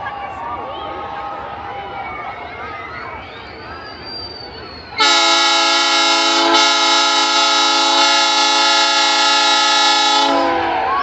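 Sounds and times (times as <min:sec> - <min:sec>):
train horn blast: 0:05.0 - 0:10.9.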